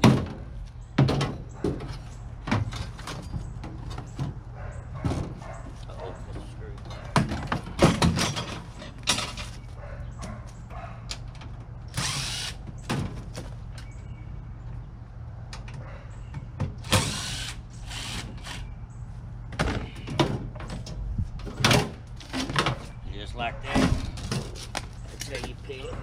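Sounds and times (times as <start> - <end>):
power drill running: 11.9 - 12.6, 16.8 - 18.6.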